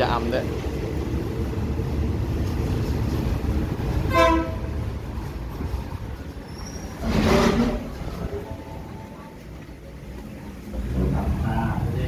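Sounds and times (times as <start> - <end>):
train horn toot: 4.1 - 4.8.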